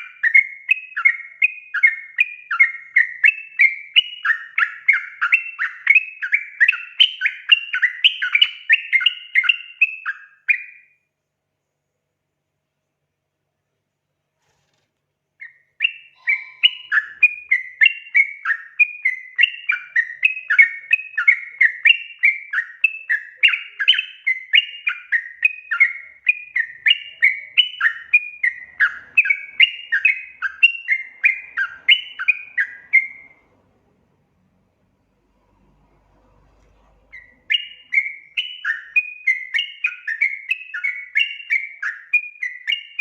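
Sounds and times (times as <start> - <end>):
bird singing chattering notes: 15.4 - 33.4.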